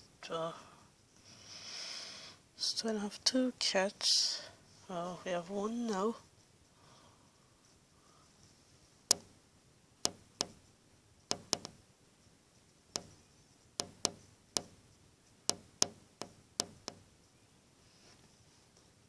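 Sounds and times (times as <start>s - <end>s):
sharp ringing taps: 10.1s - 10.6s, 11.3s - 11.8s, 13.0s - 13.2s, 13.8s - 14.8s, 15.5s - 17.1s.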